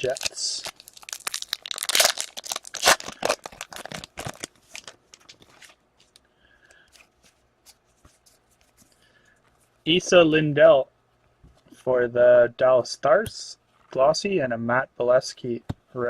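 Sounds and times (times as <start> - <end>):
card pack rustling and crinkling: 0.0 - 6.2.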